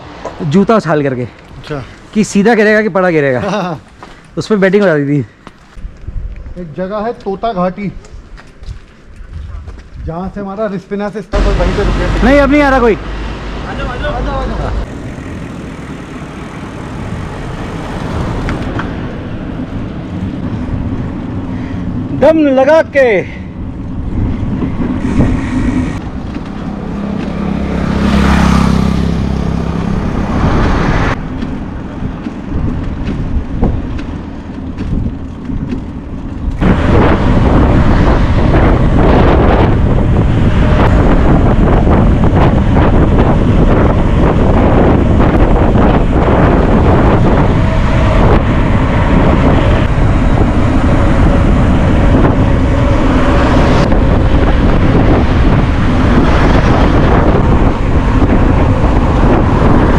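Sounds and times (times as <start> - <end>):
wind buffeting microphone: 0.0 - 10.6, 11.3 - 59.9
vehicle low hum: 11.4 - 22.2, 23.3 - 59.9.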